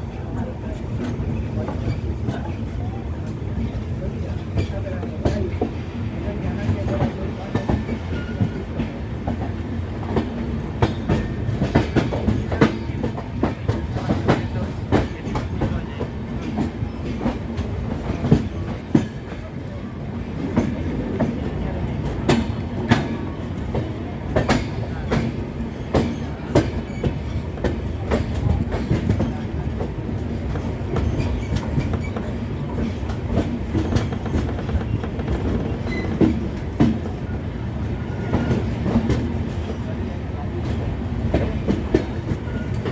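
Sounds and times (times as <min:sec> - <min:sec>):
train rumbling on rails: 0:00.0 - 0:42.9.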